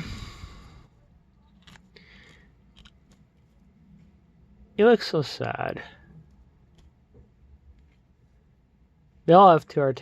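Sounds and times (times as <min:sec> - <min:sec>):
breathy exhale: 0:00.0 - 0:00.9.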